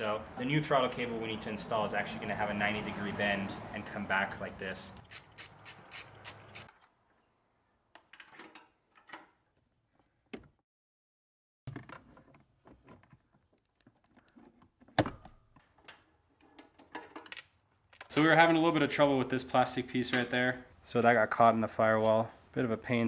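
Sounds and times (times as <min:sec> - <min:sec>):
throttle cable clicks and rattles: 0:11.7 - 0:18.2.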